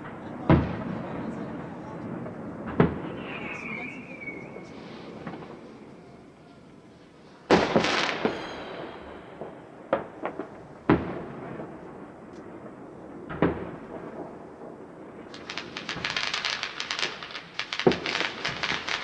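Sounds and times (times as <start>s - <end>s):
hissing crackling tail: 0.0s - 8.4s
fireworks bangs: 0.0s - 19.0s.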